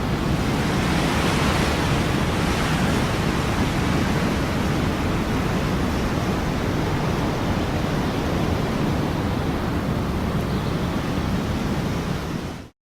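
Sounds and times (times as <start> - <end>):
ocean surf: 0.0 - 12.7.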